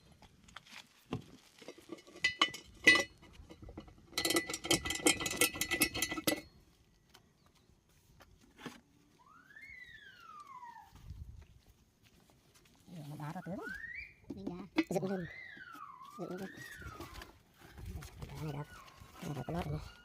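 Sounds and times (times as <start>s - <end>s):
whistle-like tone: 9.2s - 10.9s, 13.4s - 14.3s, 15.0s - 17.4s.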